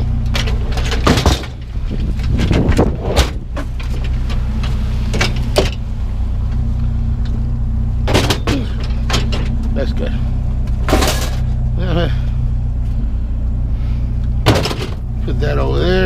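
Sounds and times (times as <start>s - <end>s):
metal rails knocking and clanking: 0.0s - 2.9s, 8.1s - 9.7s, 10.8s - 11.5s, 14.4s - 15.1s
truck engine idling: 0.0s - 16.0s.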